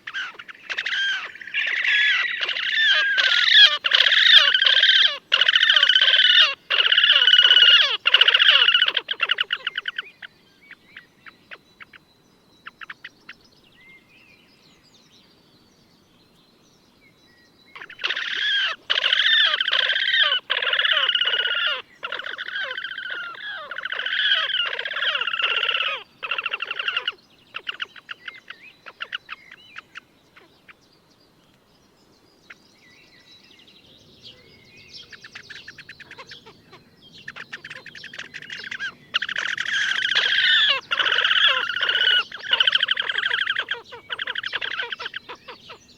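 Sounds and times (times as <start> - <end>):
grebes trilling calls: 0.0 - 10.3, 17.8 - 30.5, 35.0 - 45.9.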